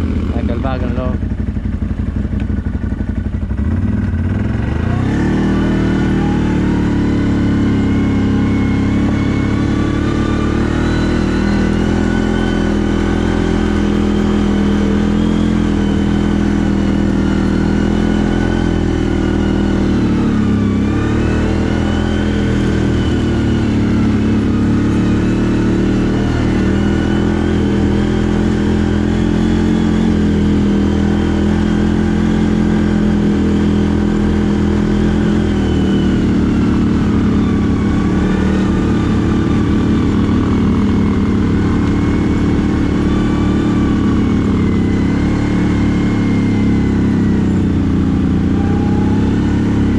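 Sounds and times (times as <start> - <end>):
atv engine running: 0.0 - 49.9.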